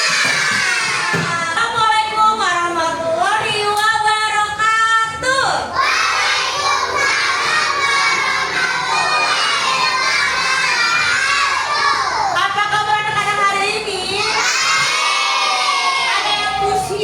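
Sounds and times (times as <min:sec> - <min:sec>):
children shouting: 0:00.0 - 0:01.6, 0:05.7 - 0:12.5, 0:14.1 - 0:16.9
children singing: 0:05.8 - 0:12.4, 0:14.3 - 0:16.4.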